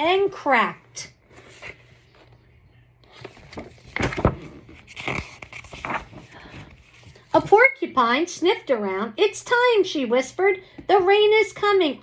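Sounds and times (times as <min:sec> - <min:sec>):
paper pages rustling: 0:01.2 - 0:02.4, 0:03.0 - 0:07.5.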